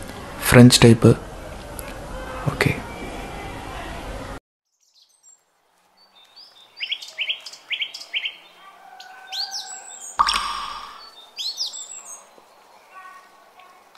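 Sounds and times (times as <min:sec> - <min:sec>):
birds chirping: 0:04.7 - 0:13.5.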